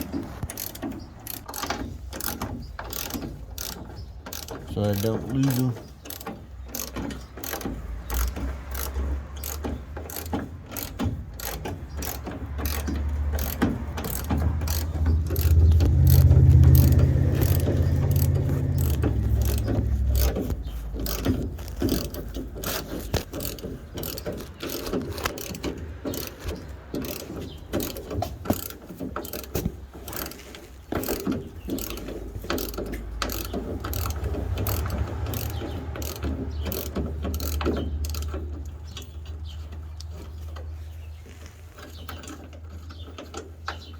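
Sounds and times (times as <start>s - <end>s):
socket ratchet clicking rapidly: 0.0s - 30.4s, 31.0s - 38.9s.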